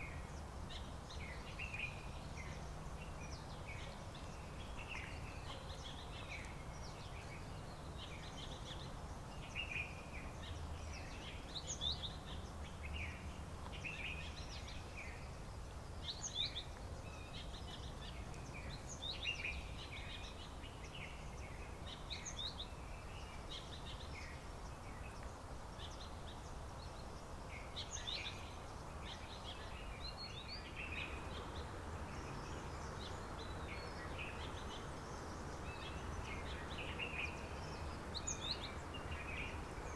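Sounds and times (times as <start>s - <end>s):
wild birds chirping: 17.2s - 39.9s.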